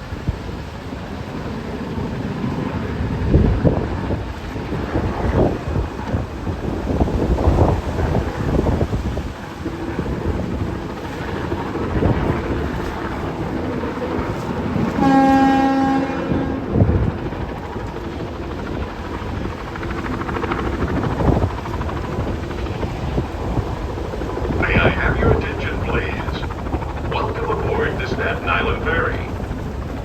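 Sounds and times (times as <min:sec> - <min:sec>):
gusty wind: 0:00.0 - 0:30.0
horn sounding: 0:15.0 - 0:16.7.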